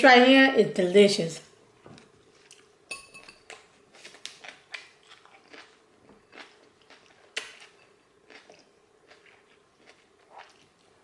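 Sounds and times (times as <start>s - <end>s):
chewing salad crunches: 2.3s - 11.0s.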